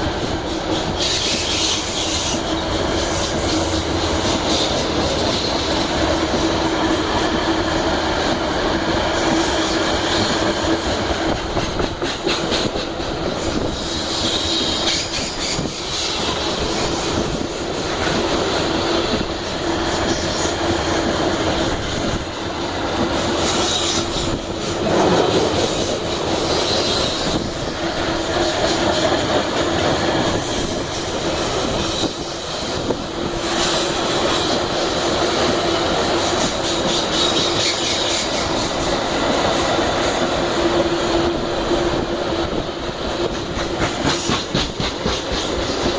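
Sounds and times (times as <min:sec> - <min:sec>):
train wheels rumbling on rails: 0:00.0 - 0:45.9
high wheel squeal: 0:36.7 - 0:39.0.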